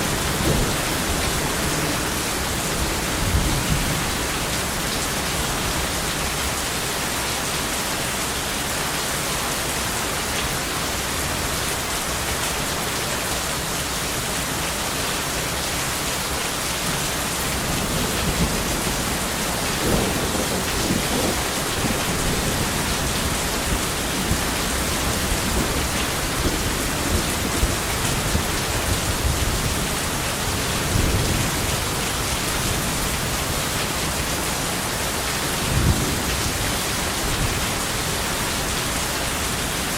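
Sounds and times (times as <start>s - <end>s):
thunder rumbling: 0.0s - 4.4s, 17.6s - 30.1s
heavy rain: 0.0s - 39.9s.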